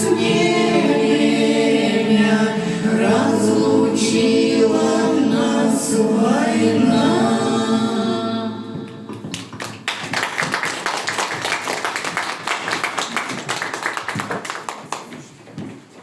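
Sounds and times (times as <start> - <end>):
audience applauding: 9.1 - 15.1.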